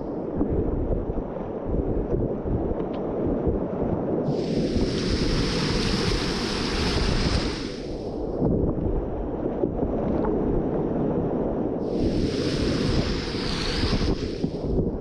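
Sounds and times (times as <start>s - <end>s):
spray hissing and splashing: 4.3s - 8.0s, 11.8s - 14.6s.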